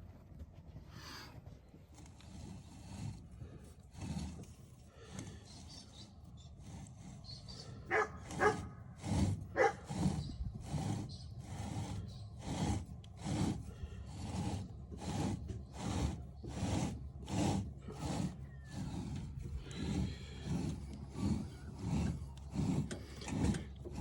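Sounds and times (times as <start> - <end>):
rhythmic scraping strokes: 6.5 - 24.0.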